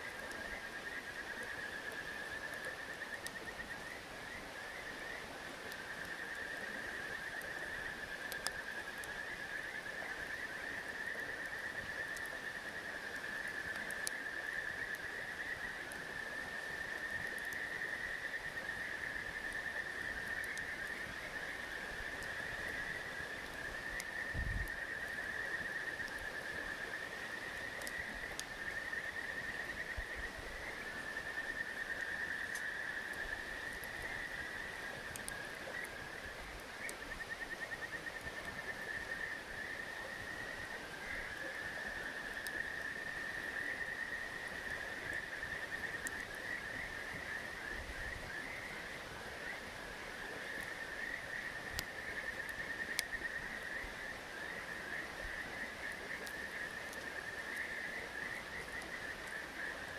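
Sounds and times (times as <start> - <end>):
frogs trilling: 0.0 - 59.9
faint sharp ticks: 8.2 - 9.2, 13.1 - 14.2, 17.1 - 17.8, 19.4 - 21.2, 22.1 - 22.8, 23.4 - 26.3, 27.6 - 29.2, 32.4 - 36.0, 36.6 - 37.4, 51.7 - 53.4, 55.8 - 59.4.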